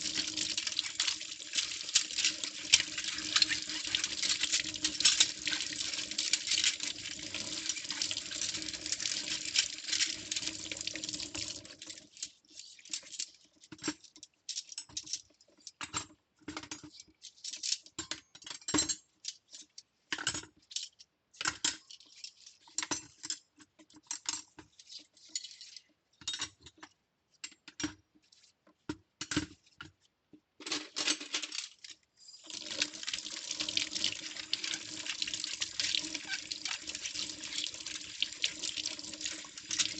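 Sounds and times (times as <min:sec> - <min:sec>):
tap running into sink: 0:32.5 - 0:39.9.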